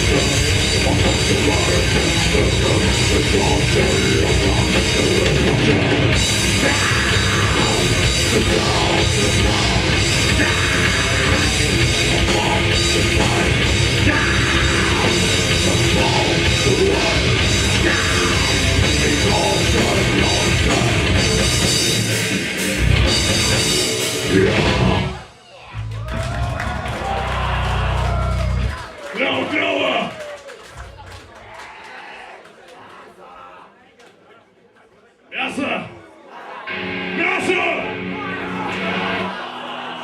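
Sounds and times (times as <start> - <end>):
death metal band playing live: 0.0 - 25.4, 36.7 - 40.0.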